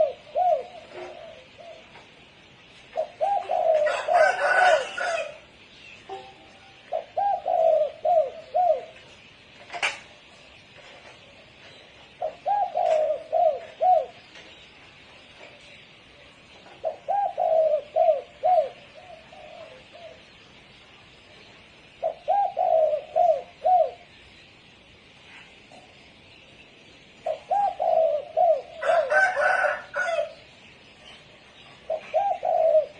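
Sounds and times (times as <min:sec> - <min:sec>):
dove cooing: 0:00.0 - 0:02.2, 0:02.9 - 0:05.5, 0:06.1 - 0:09.1, 0:12.1 - 0:14.4, 0:16.6 - 0:20.4, 0:22.0 - 0:24.1, 0:27.2 - 0:30.4, 0:31.8 - 0:32.9.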